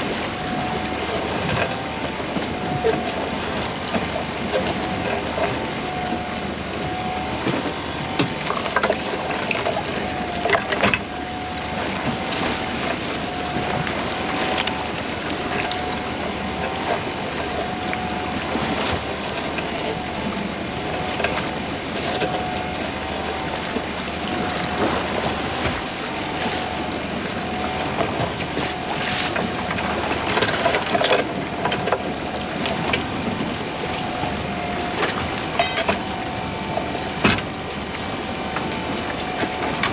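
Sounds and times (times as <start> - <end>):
boat motor humming: 0.0 - 39.9
wind and water noise: 0.0 - 39.9.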